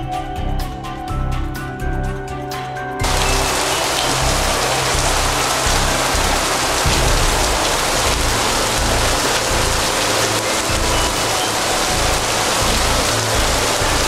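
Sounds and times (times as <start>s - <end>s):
heavy rain pouring: 3.0s - 14.0s.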